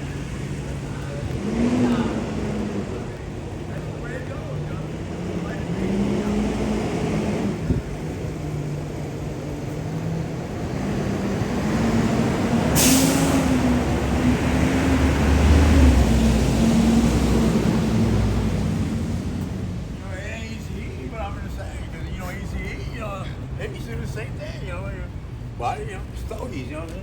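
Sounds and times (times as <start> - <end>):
heavy vehicle engine rumble: 0.0 - 27.0
air brake hiss: 12.7 - 13.5.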